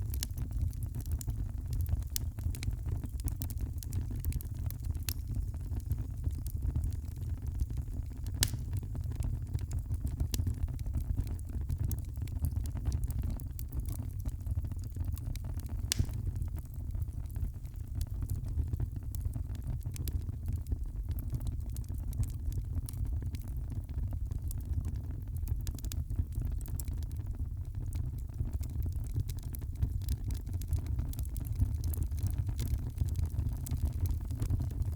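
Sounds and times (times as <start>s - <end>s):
sharp crack of fire: 0.0s - 23.5s
wood fire crackling: 0.0s - 34.9s.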